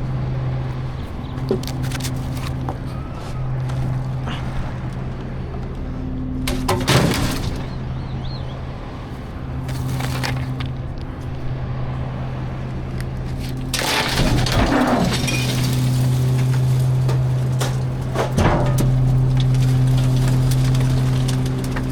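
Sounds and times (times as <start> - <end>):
garbage truck engine running: 0.0 - 21.9
trash crashing into hopper: 6.4 - 8.0, 13.4 - 21.9.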